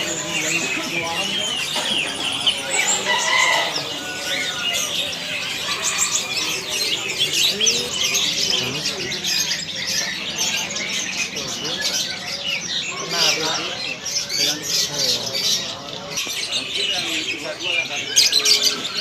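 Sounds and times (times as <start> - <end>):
murmur of voices: 0.0 - 19.0
songbirds chirping: 0.0 - 19.0.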